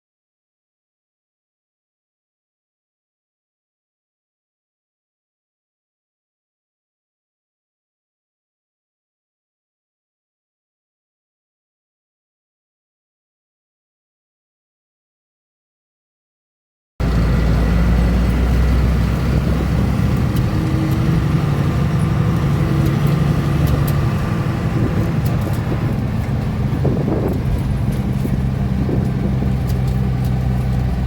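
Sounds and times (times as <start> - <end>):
bus engine droning: 17.0 - 31.0
light rattles: 18.3 - 31.0.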